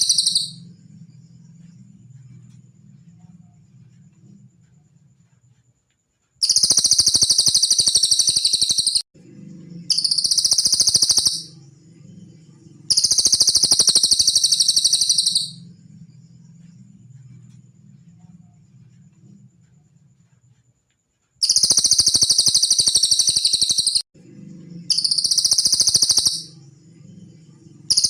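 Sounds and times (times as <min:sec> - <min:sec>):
bird high trills: 0:00.0 - 0:00.6, 0:06.4 - 0:09.0, 0:09.8 - 0:11.6, 0:12.9 - 0:15.7, 0:21.4 - 0:24.0, 0:24.8 - 0:26.6.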